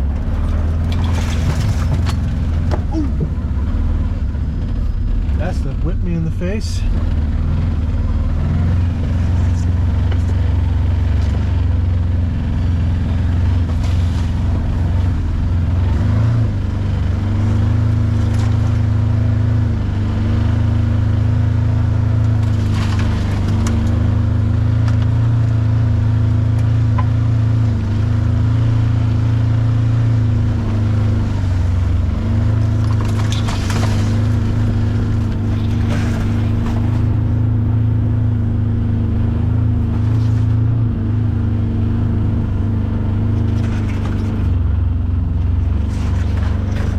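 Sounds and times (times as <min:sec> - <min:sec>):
utility vehicle engine running: 0:00.0 - 0:46.9.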